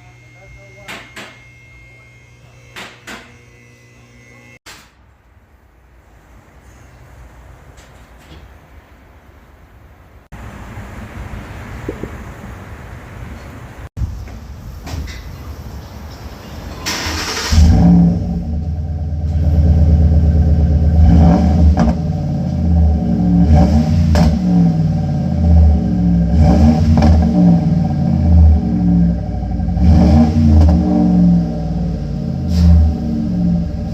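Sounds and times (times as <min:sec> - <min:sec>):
car engine starting: 0:16.7 - 0:33.9
engine revving with deep exhaust rumble: 0:17.1 - 0:33.9.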